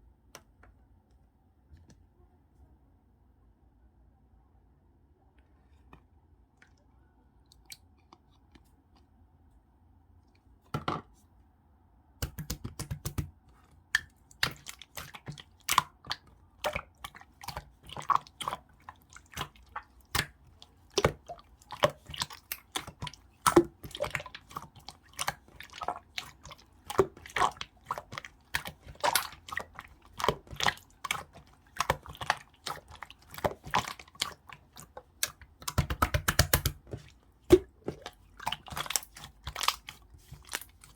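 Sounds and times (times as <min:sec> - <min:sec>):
slime clicking and popping: 0:12.2 - 0:13.2, 0:26.3 - 0:36.8
slime squish: 0:12.2 - 0:40.9.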